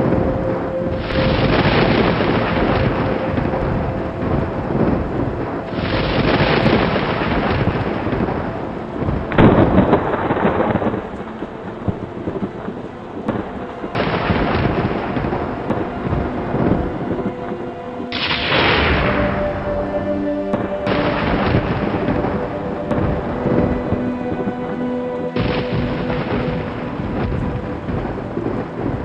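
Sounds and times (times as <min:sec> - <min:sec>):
rolling thunder: 0:00.0 - 0:17.4, 0:25.4 - 0:29.0
steady rain: 0:00.0 - 0:29.0.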